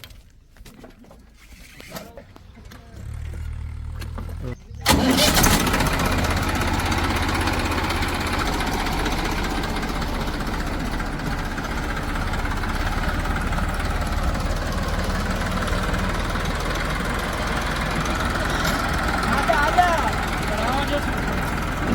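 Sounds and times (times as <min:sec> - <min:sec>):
diesel engine idling: 0:02.3 - 0:21.9.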